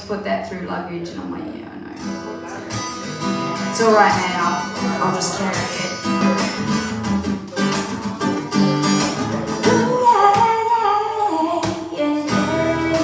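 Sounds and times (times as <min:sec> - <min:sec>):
acoustic guitar: 0:00.0 - 0:13.0
person singing wordless phrase: 0:03.8 - 0:06.6, 0:09.4 - 0:13.0.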